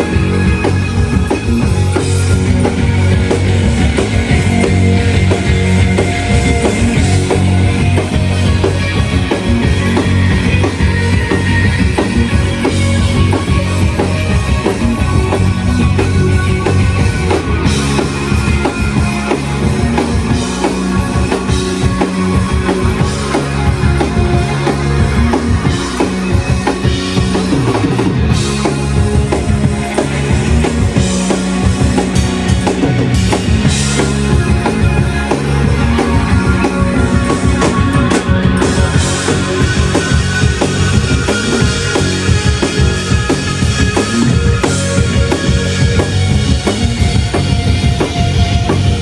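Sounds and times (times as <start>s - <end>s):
bass guitar: 0.0s - 49.0s
distorted electric guitars: 0.0s - 49.0s
driving drum kit: 0.0s - 49.0s.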